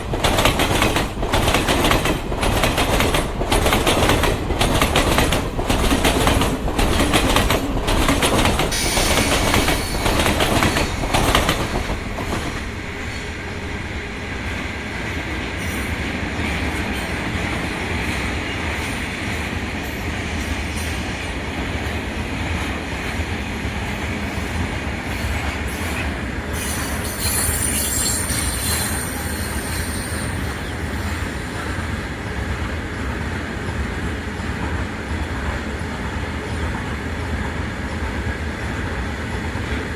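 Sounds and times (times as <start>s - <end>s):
train wheel clacks over rail joints: 0.0s - 13.3s
train rolling rumble: 0.0s - 39.9s
high wheel squeal: 8.7s - 13.3s, 25.7s - 32.2s.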